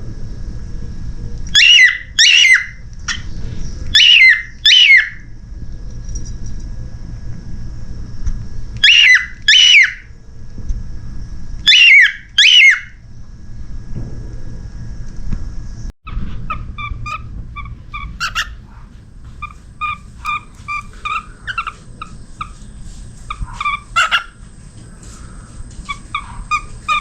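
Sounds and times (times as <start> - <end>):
cockatiel calling: 1.5 - 3.3, 3.9 - 5.3, 8.8 - 10.1, 11.6 - 13.0, 16.1 - 24.4, 25.0 - 27.0.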